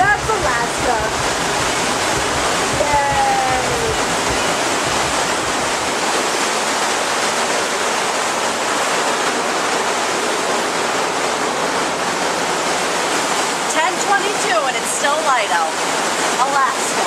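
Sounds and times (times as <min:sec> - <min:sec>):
water rushing at ship's stern: 0:00.0 - 0:17.0.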